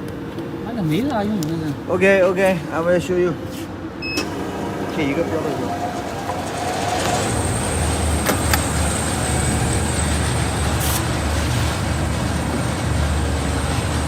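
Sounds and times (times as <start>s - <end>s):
low hum: 4.0s - 14.0s
machine high whine: 4.0s - 14.0s
short hiss: 10.8s - 11.1s.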